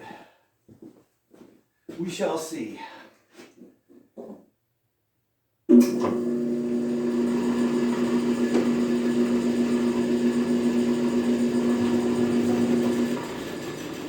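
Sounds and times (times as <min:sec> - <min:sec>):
electric motor humming: 0:05.9 - 0:14.0.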